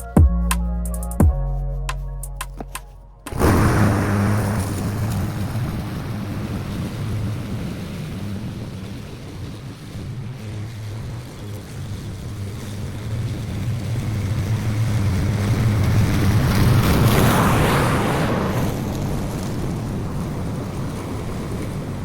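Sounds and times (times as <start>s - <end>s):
lawn mower engine cutting grass: 3.3s - 17.2s.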